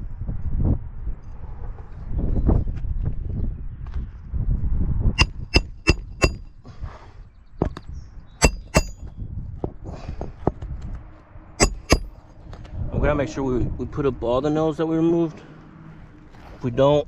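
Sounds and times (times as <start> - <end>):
hammer tapping on metal: 5.2 - 6.4, 8.4 - 9.0, 11.6 - 12.1.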